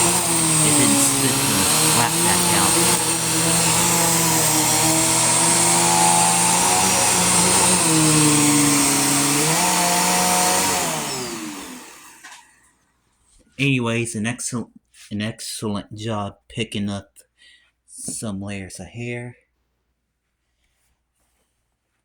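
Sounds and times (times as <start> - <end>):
motor spinning down: 0.0 - 12.4
vacuum cleaner running: 0.0 - 12.6.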